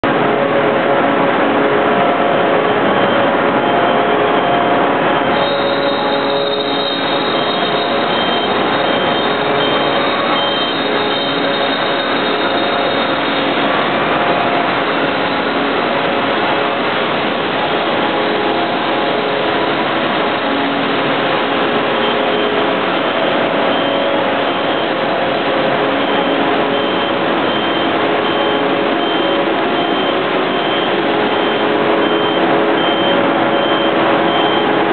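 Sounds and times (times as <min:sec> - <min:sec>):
industrial machinery running: 0:00.0 - 0:34.9
high-pitched beep: 0:02.6 - 0:14.7, 0:21.6 - 0:34.9.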